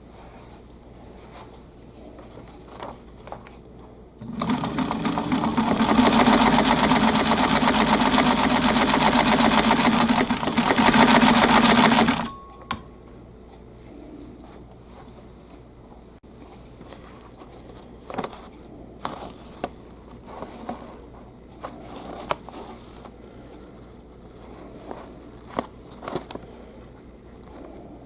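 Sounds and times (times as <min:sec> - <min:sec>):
sewing machine stitching: 0:04.2 - 0:12.4.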